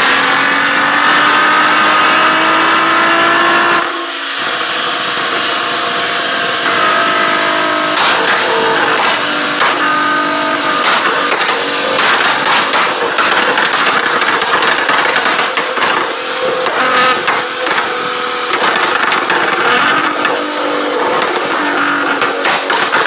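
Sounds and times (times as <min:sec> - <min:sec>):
car engine revving: 0:00.0 - 0:23.0
exhaust pops and crackles: 0:10.8 - 0:20.4, 0:21.0 - 0:23.0.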